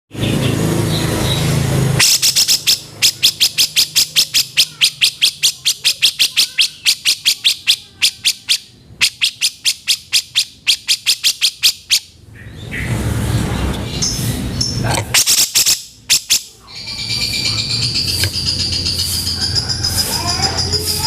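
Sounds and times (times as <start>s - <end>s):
bulbul giving harsh notes: 2.0s - 12.1s.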